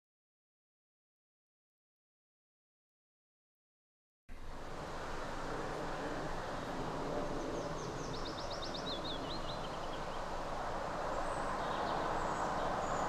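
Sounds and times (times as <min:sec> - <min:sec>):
outdoor background noise: 0:04.3 - 0:13.0.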